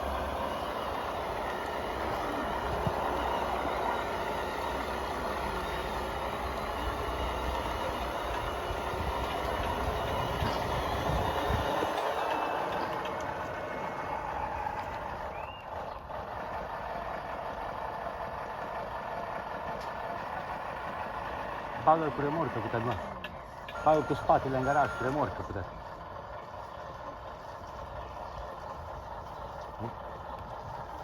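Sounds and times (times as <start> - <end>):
rising whine: 0.0 - 15.7
model truck motor whirring: 0.0 - 31.0.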